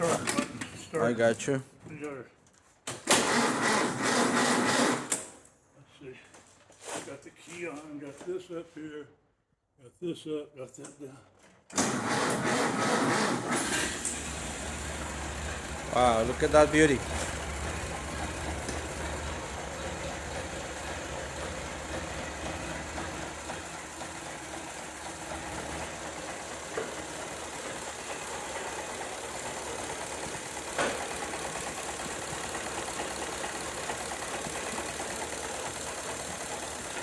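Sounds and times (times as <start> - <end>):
car engine idling: 13.8 - 37.0
engine knock: 14.1 - 37.0.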